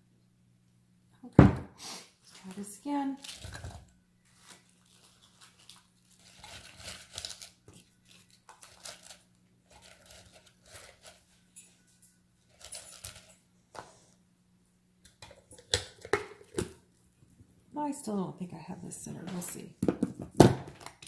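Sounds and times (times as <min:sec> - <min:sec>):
rustling and crinkling: 0:02.2 - 0:14.2.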